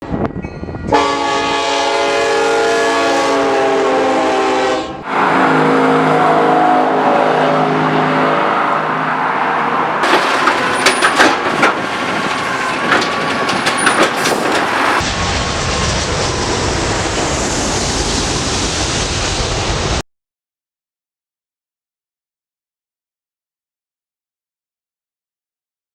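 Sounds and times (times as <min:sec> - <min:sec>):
passing train rumble: 0:00.0 - 0:20.0
train horns chord: 0:00.1 - 0:10.0
rail cars clattering: 0:05.0 - 0:19.9
wheel squeals: 0:10.0 - 0:15.0.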